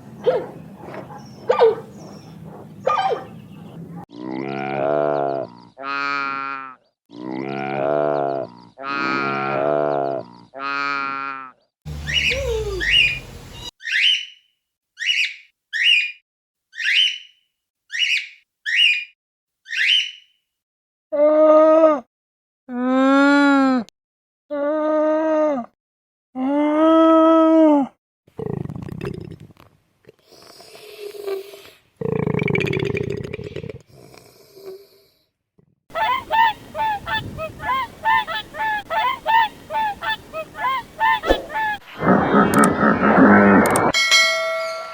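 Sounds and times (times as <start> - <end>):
animal whistle-like calls: 12.0 - 14.3, 35.9 - 43.0
loud low rough animal call: 39.5 - 44.0.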